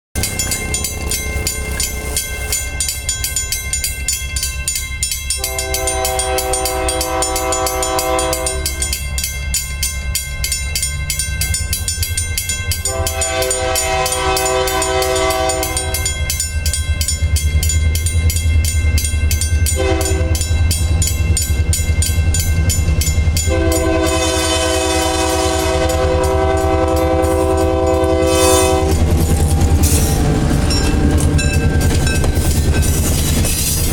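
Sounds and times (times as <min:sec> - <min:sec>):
diesel locomotive engine rumbling: 0:00.1 - 0:33.9
train wheels clicking over rail joints: 0:00.2 - 0:33.9
locomotive air horn blasts: 0:05.4 - 0:08.9, 0:12.8 - 0:16.2, 0:19.7 - 0:20.7, 0:23.4 - 0:31.4.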